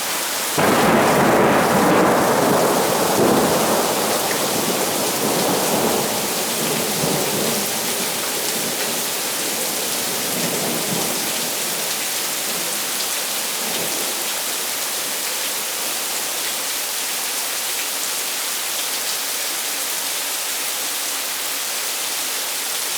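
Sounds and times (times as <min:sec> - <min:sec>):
thunder rumbling: 0:00.0 - 0:12.8
rain pattering: 0:00.0 - 0:17.4.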